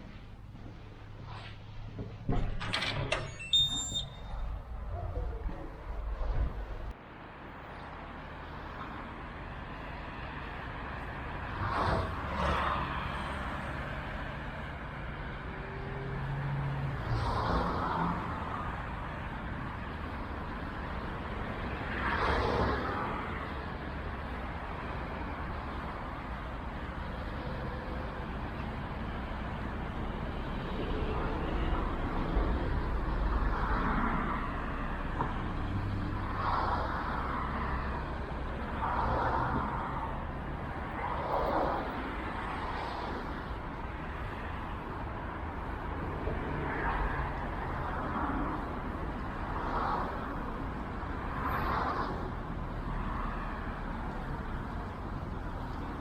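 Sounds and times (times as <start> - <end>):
road traffic rumble: 0.0 - 56.0
vehicles passing: 0.0 - 56.0.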